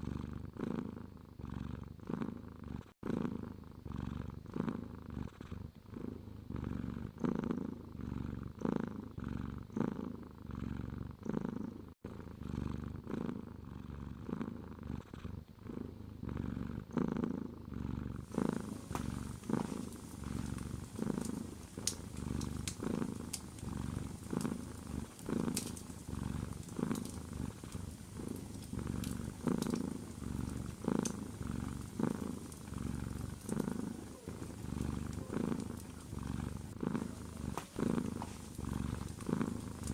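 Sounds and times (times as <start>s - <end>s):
cat purring: 0.0s - 39.9s
fireplace fire crackling: 18.3s - 39.9s.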